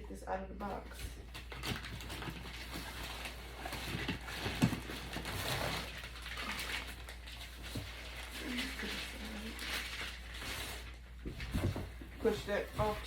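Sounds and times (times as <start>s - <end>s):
cardboard and foam rustling: 0.6s - 13.0s.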